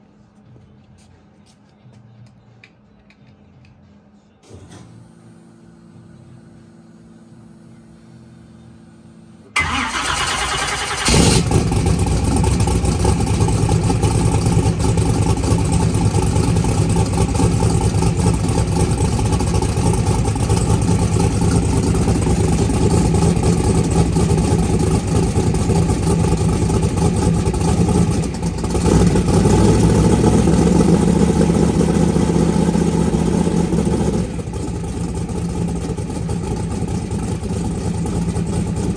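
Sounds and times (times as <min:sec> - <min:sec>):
steady low hum: 0:00.0 - 0:09.6
car engine cranking and running: 0:09.4 - 0:38.9.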